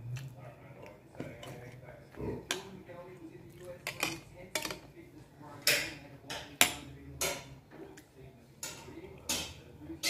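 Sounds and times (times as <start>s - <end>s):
cutlery scraping on plate: 3.6s - 4.9s.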